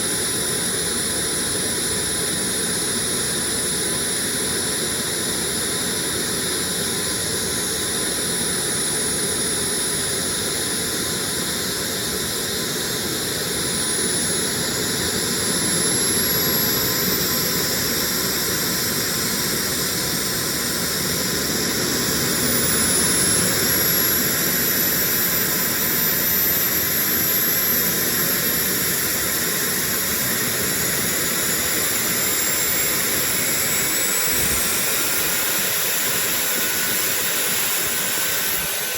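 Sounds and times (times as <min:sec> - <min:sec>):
turbojet engine roaring: 0:00.0 - 0:38.9
high whine rising in pitch: 0:09.8 - 0:38.9.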